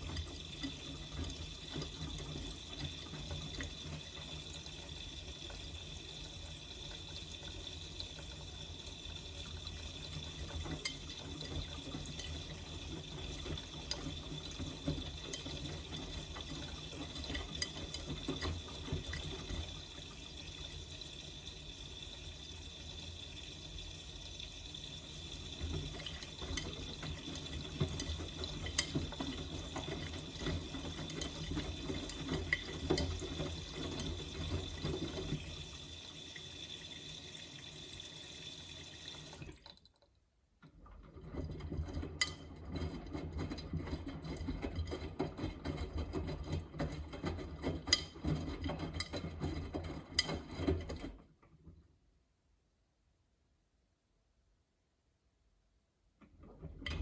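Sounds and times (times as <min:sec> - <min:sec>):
water hissing into washing machine: 0:00.0 - 0:39.9.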